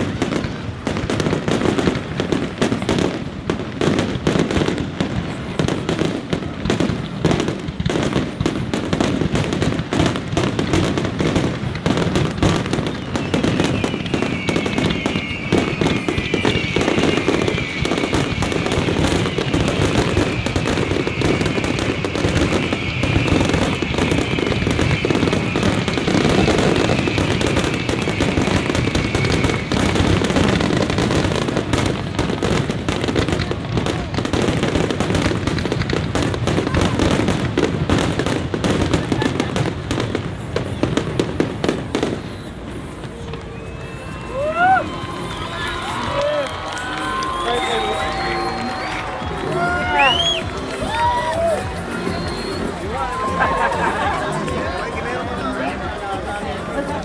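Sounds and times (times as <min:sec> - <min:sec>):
fireworks bangs and crackling: 0:00.0 - 0:57.0
high wavering whistle: 0:13.1 - 0:20.4, 0:43.2 - 0:53.7.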